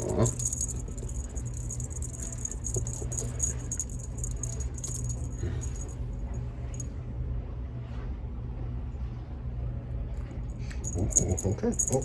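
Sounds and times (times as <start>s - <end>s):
cat toy jingling and rattling: 0.0s - 6.0s, 10.7s - 12.0s
low steady hum: 0.0s - 12.0s.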